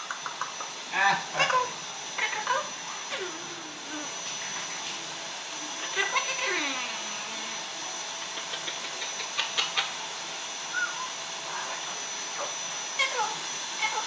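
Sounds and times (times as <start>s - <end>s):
parrot calling: 0.0s - 4.5s, 5.6s - 7.6s, 8.2s - 14.0s.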